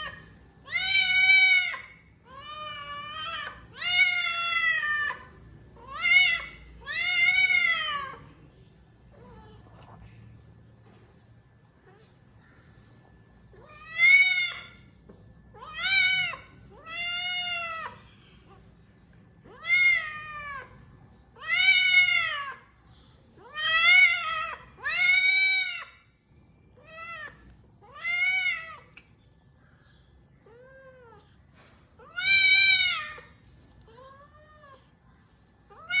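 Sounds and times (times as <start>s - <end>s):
cat meowing: 15.6s - 18.6s, 19.5s - 20.8s, 26.8s - 29.0s, 32.0s - 34.9s.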